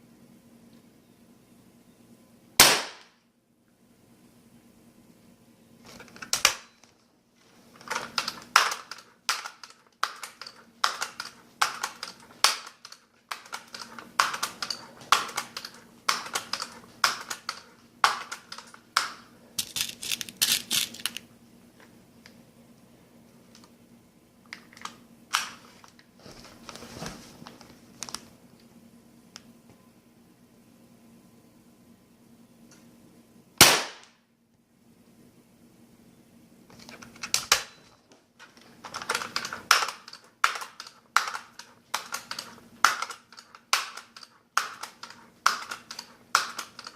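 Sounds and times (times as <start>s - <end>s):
air rifle pump clacks: 38.6s - 46.9s.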